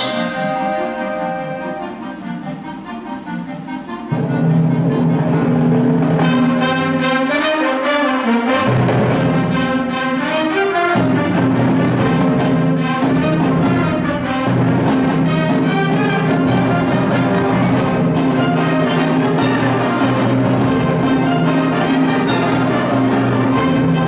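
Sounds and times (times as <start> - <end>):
concert band playing chords: 0.0 - 7.5, 8.5 - 24.0.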